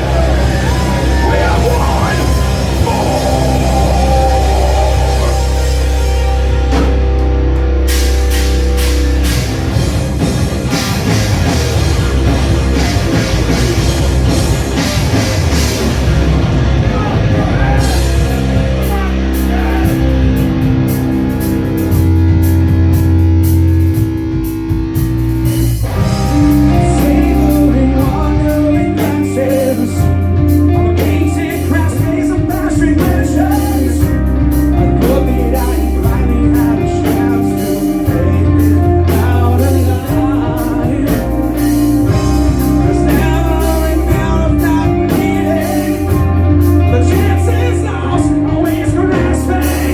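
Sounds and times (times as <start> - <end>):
distorted electric guitar: 0.0 - 49.9
live rock band playing: 0.0 - 49.9
rock vocals: 0.0 - 49.9.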